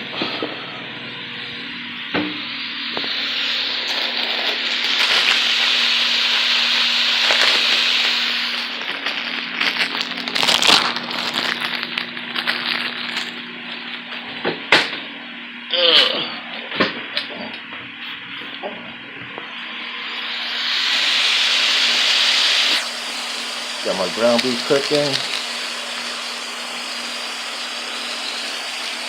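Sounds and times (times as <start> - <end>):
meat sizzling in a pot: 2.9 - 11.5, 20.0 - 29.0
crackles and pops: 3.8 - 13.3, 24.3 - 25.7.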